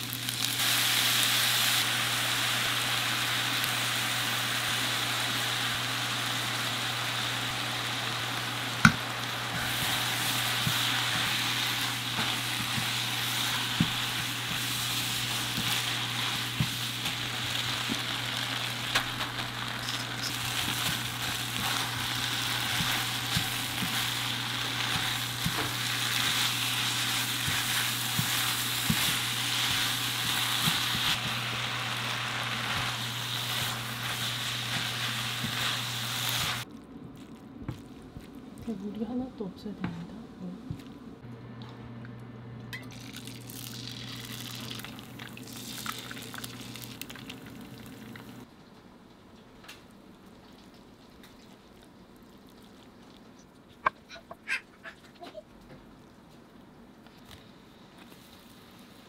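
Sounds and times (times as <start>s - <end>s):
food sizzling in pan: 0.0s - 36.7s, 42.9s - 48.5s.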